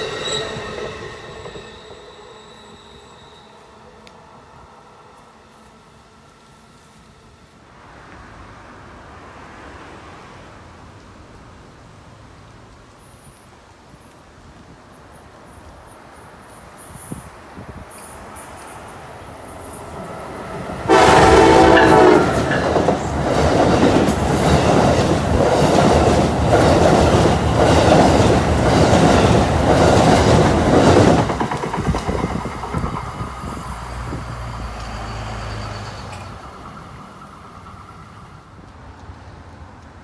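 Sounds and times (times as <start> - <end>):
train wheels clattering over bridge: 16.4 - 39.2
train horn blast: 20.9 - 22.7.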